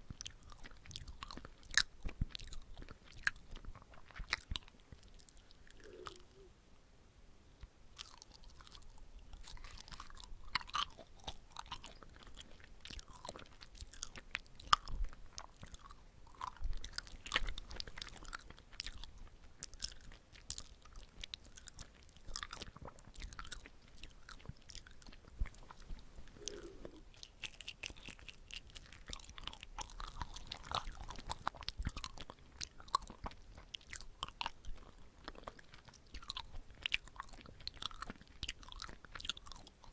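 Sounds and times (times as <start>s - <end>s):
chewing rice cake: 0.0s - 6.5s, 7.6s - 39.9s
wet sticky mouth clicks: 0.1s - 6.5s, 16.9s - 34.6s.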